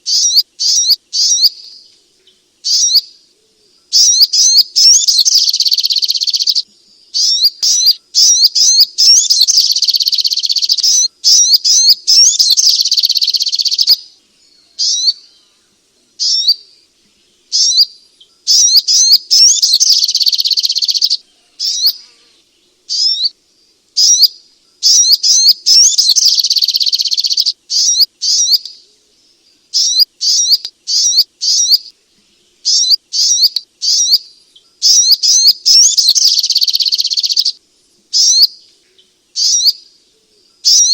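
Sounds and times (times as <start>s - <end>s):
bird rapid high chirps: 0.0s - 1.8s, 2.6s - 3.1s, 3.9s - 14.1s, 14.8s - 15.3s, 16.2s - 16.6s, 17.5s - 22.0s, 22.9s - 23.3s, 24.0s - 28.8s, 29.7s - 31.9s, 32.6s - 38.7s, 39.3s - 39.8s, 40.6s - 40.9s.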